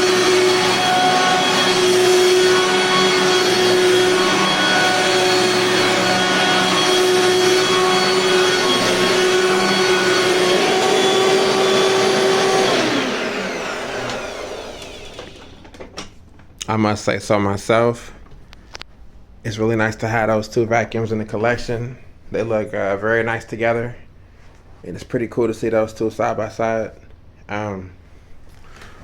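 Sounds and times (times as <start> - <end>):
motor winding down: 0.0 - 15.8
vacuum cleaner whining: 0.0 - 16.1.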